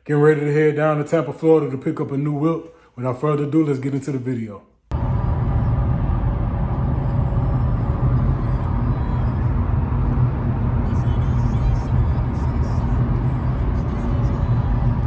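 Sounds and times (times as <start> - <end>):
car driving on road: 4.9 - 15.0.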